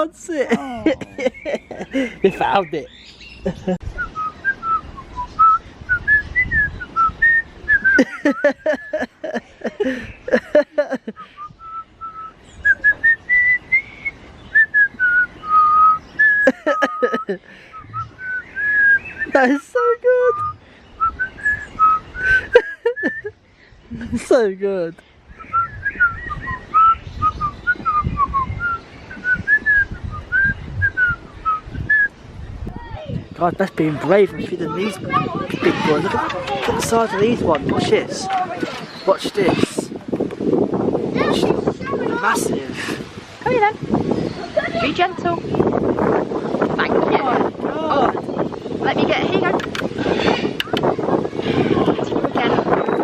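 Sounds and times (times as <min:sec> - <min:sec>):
low rumbling noise: 0:17.7 - 0:19.2
person whistling a tune: 0:25.4 - 0:32.1.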